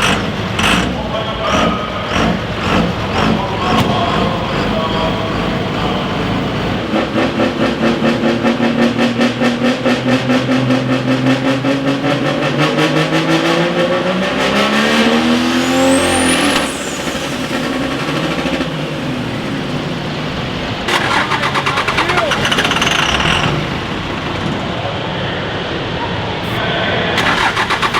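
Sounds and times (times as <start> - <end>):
engine at full power: 0.0 - 27.9.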